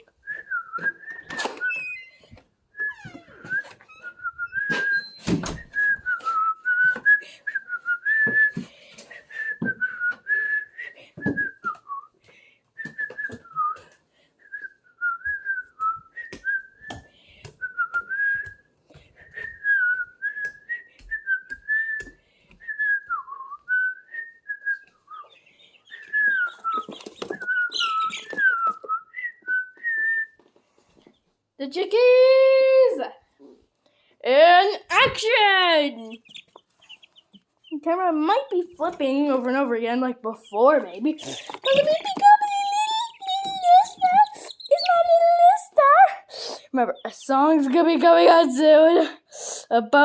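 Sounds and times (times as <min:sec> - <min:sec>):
person whistling: 0:00.2 - 0:01.8, 0:02.8 - 0:08.6, 0:09.2 - 0:12.1, 0:12.8 - 0:18.6, 0:19.2 - 0:25.3, 0:25.9 - 0:30.4.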